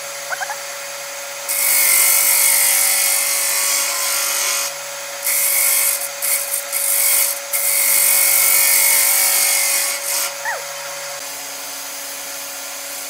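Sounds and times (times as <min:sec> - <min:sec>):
tool shaving spinning wood: 0:01.5 - 0:10.4.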